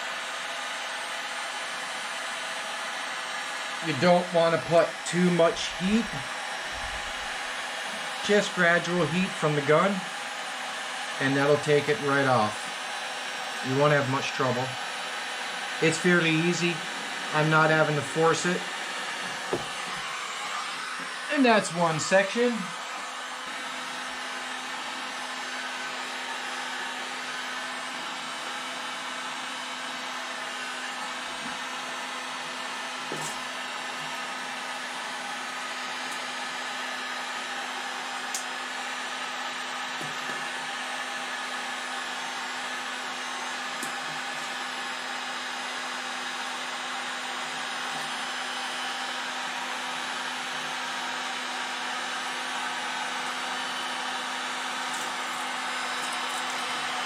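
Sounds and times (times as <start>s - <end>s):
heat gun blowing and humming: 0.0s - 57.0s.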